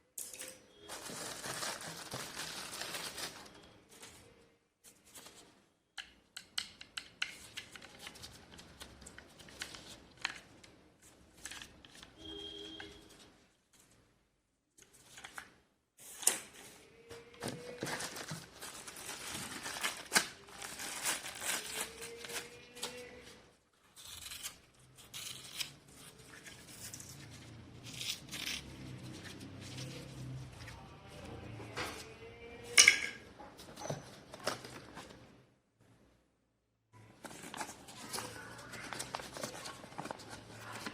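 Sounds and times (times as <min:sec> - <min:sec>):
packaging rustling and crinkling: 0:00.8 - 0:04.2, 0:17.4 - 0:23.3, 0:37.2 - 0:40.9.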